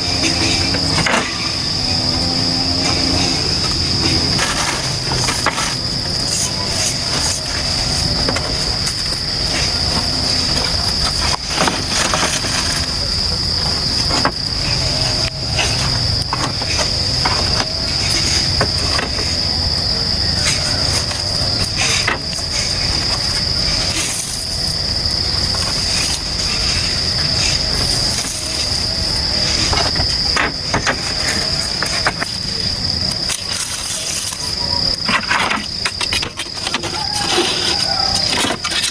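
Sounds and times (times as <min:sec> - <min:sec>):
insects chirring drone: 0:00.0 - 0:38.9.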